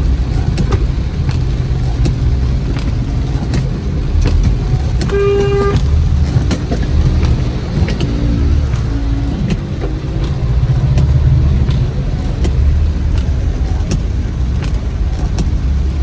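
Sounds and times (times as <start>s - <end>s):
car engine rumbling: 0.0s - 16.0s
sharp ticks: 0.0s - 16.0s.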